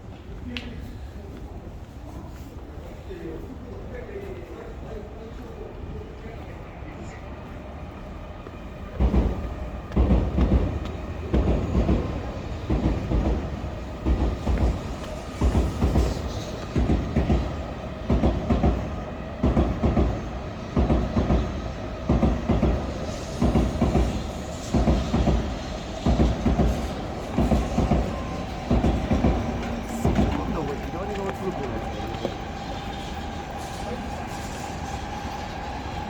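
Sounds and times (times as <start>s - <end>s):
train wheels clattering: 8.9s - 36.0s.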